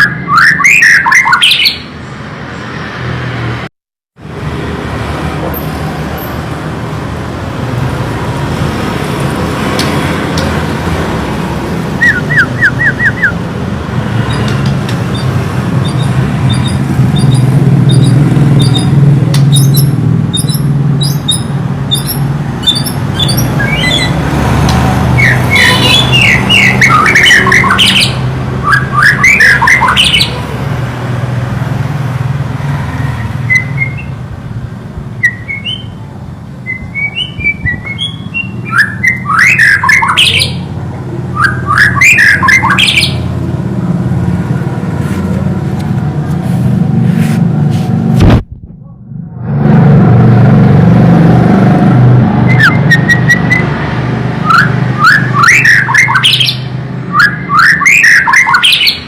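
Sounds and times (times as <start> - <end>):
songbird chirps and whistles: 12.0 - 13.4, 15.1 - 18.9, 19.5 - 24.1, 33.4 - 34.2, 35.2 - 36.0, 36.6 - 40.6, 52.5 - 53.7, 54.5 - 59.0.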